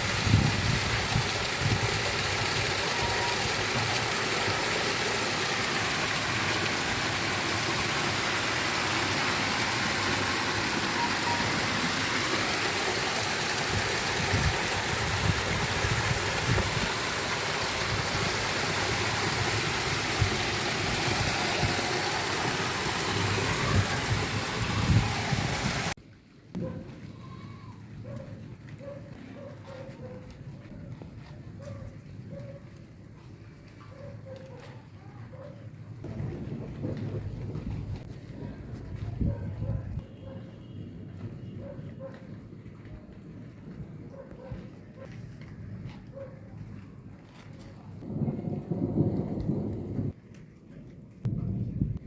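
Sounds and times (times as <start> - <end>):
heavy rain hissing: 0.0 - 26.0.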